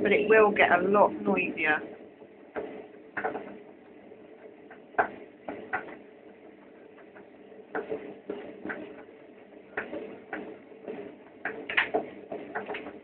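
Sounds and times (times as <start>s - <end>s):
washing machine hum: 0.0s - 13.0s
drum knocks and clicks: 4.4s - 13.0s.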